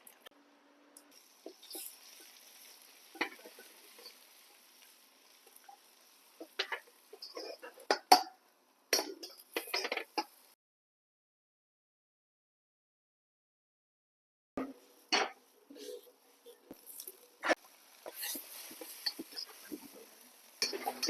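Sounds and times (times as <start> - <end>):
frying hiss: 0.0 - 10.6, 14.6 - 21.0
utensil stirring in a pan: 1.1 - 10.6, 14.8 - 21.0.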